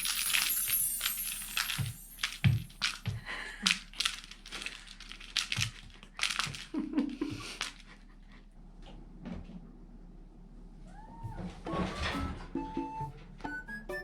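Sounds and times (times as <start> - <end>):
cat toy rustling and crinkling: 0.0 - 8.0.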